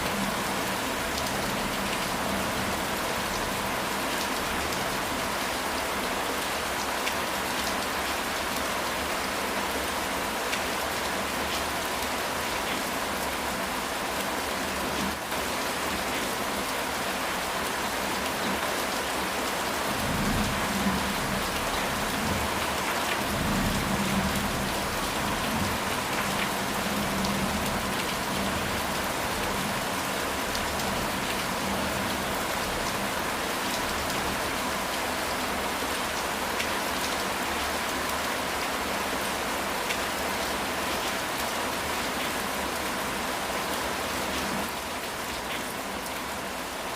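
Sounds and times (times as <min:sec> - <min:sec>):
heavy rain on roof: 0:00.0 - 0:46.9.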